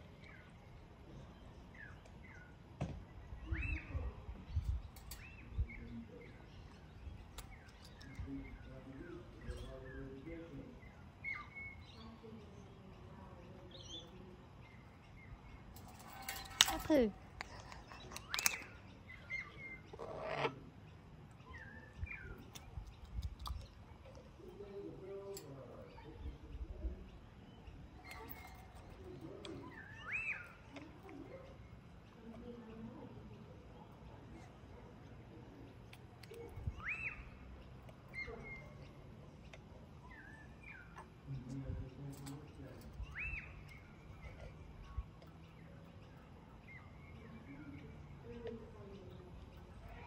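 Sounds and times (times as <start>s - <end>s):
birds chirping: 0.0s - 50.0s
light clicks: 15.8s - 18.8s
bird chirps: 27.3s - 32.6s, 36.3s - 41.5s, 42.2s - 50.0s.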